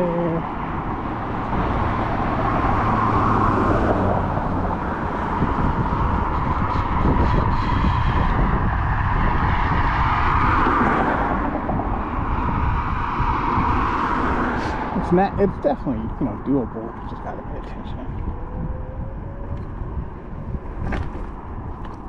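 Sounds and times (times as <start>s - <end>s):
wind rushing over microphone: 0.0s - 22.0s
scooter rumbling over rough pavement: 17.6s - 22.0s.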